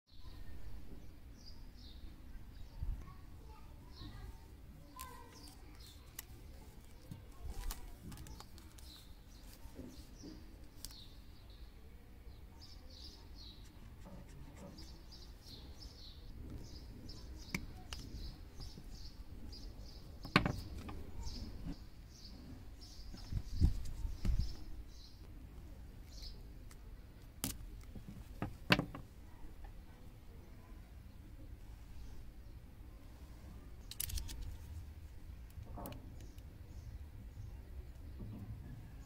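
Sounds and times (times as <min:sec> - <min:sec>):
small bird chirping: 0:01.4 - 0:25.3
cable handling clicks and thumps: 0:05.0 - 0:11.1, 0:20.2 - 0:21.8, 0:26.0 - 0:29.1.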